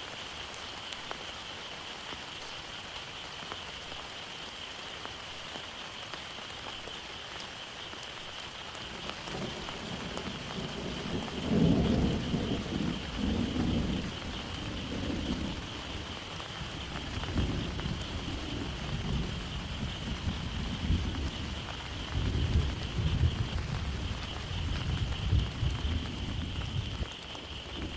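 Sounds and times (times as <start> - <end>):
heavy rain: 0.0 - 27.9
thunder rolling: 8.8 - 27.9.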